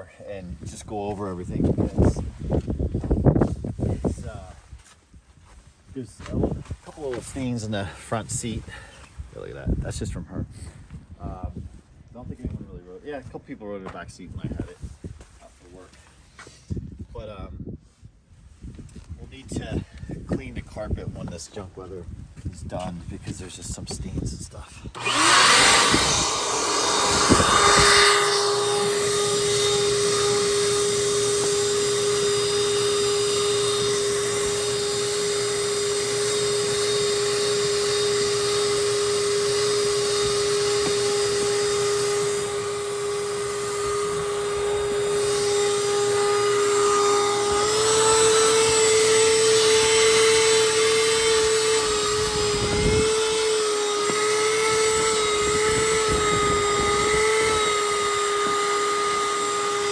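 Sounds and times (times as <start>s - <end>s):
shop vac running: 24.9s - 59.9s.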